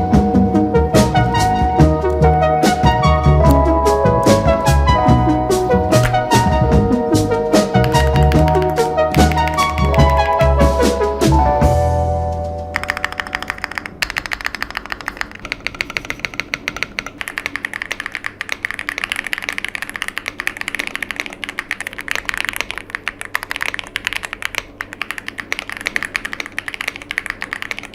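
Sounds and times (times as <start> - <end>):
backing music: 0.0 - 14.0
mechanical keyboard typing: 7.6 - 10.7, 12.7 - 27.9.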